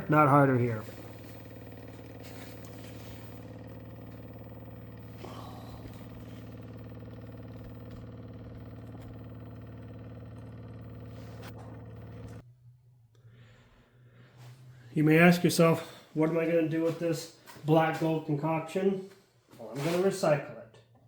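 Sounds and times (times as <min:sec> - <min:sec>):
electric pump running: 0:00.0 - 0:12.4.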